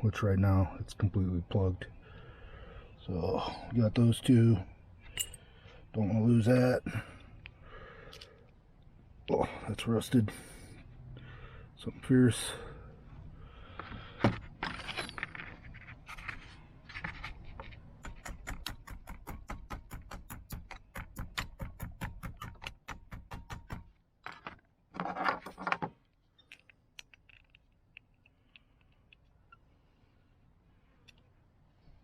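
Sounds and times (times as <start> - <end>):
metal parts scraping: 14.4 - 17.8.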